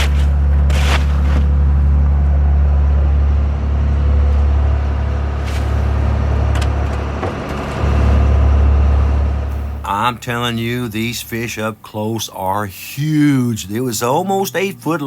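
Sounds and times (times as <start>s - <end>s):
boat engine droning: 0.0s - 12.2s.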